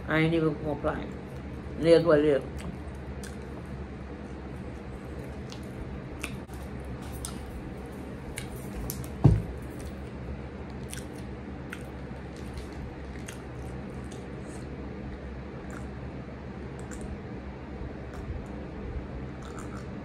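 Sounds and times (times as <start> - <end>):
steady low hum: 0.0 - 20.0
wet chewing clicks and squishes: 2.5 - 3.8, 4.6 - 7.6, 10.7 - 14.6, 16.8 - 17.2, 19.4 - 20.0.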